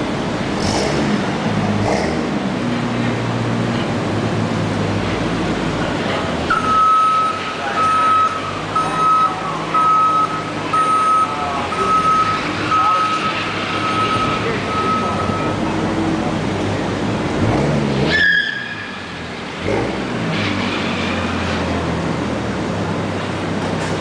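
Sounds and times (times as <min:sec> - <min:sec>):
vehicle backup beeper: 0:06.5 - 0:15.8.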